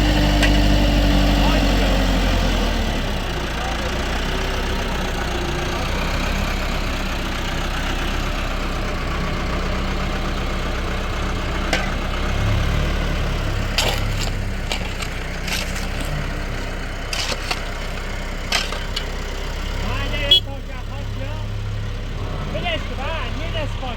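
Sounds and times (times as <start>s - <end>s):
tractor engine running: 0.0s - 23.9s
sharp knocks and cracks: 11.7s - 12.1s, 13.7s - 16.2s, 17.1s - 19.1s.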